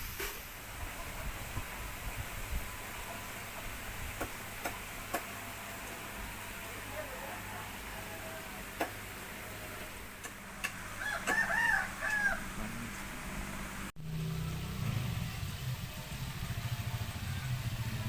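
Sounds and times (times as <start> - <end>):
low engine rumble: 0.0 - 18.0
rooster crowing: 6.9 - 8.6, 11.0 - 12.7.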